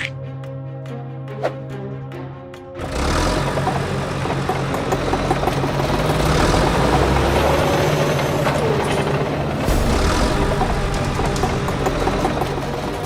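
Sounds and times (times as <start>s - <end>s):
heavy vehicle engine rumbling: 2.8s - 13.0s.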